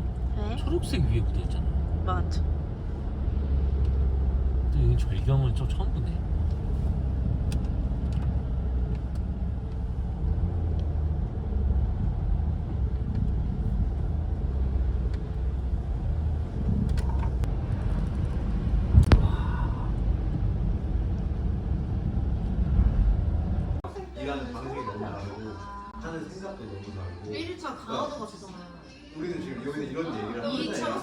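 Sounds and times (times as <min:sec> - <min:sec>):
car cabin road noise: 0:00.0 - 0:23.9.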